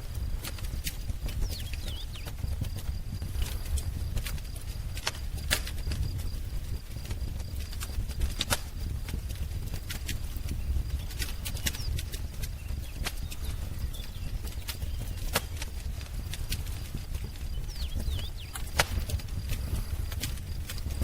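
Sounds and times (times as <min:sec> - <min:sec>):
wood fire crackling: 0:00.0 - 0:21.0
bird chirping: 0:01.3 - 0:02.6, 0:10.8 - 0:15.6, 0:16.7 - 0:19.2.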